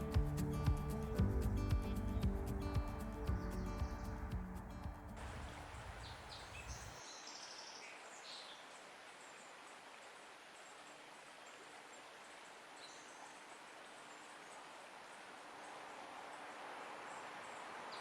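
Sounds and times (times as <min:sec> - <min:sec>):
high bird chirps: 0:00.0 - 0:04.9
background music: 0:00.0 - 0:05.4
steady outdoor hiss: 0:00.0 - 0:18.0.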